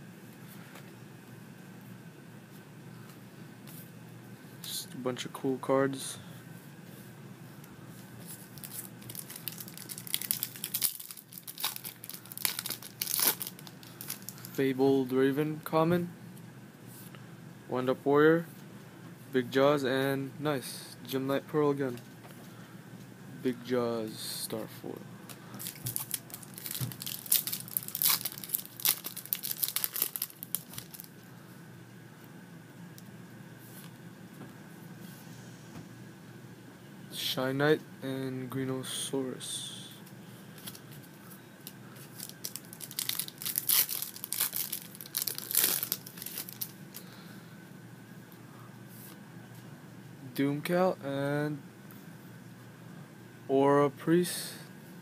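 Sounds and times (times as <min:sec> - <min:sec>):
plastic wrapper crinkling and tearing: 0:08.4 - 0:14.6, 0:25.6 - 0:31.2, 0:40.6 - 0:46.8.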